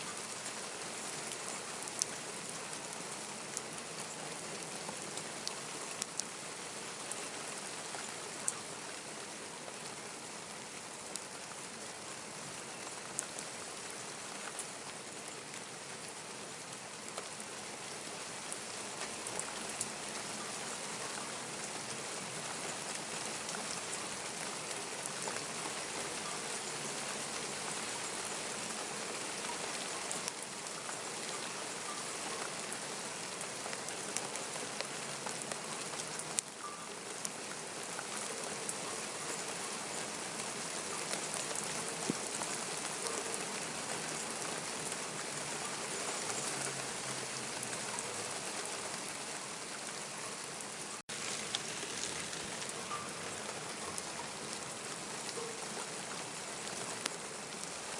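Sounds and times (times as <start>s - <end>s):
steady rain falling: 0.0s - 57.9s
raindrop ticks: 3.4s - 6.4s, 33.3s - 39.4s, 41.0s - 48.7s, 51.1s - 57.8s.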